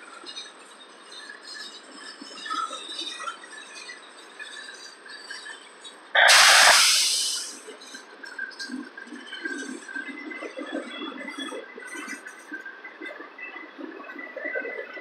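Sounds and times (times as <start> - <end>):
freight train cars rolling on rails: 0.0 - 13.1
loud hiss: 6.2 - 7.6.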